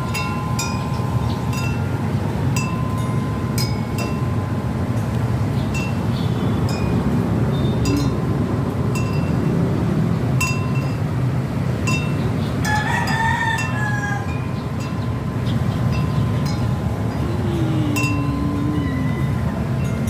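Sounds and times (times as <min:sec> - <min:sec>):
steady low rumble: 0:14.4 - 0:20.0.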